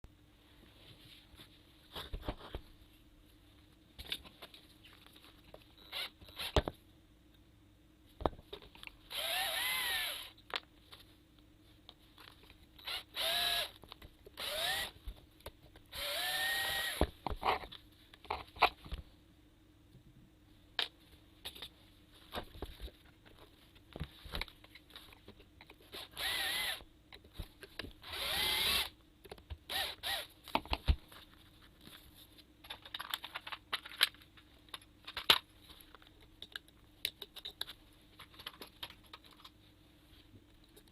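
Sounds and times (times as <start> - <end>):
power drill whirring in bursts: 9.1 - 10.3, 12.8 - 13.7, 14.4 - 14.9, 15.9 - 17.0, 26.2 - 26.8, 28.0 - 28.9, 29.7 - 30.3.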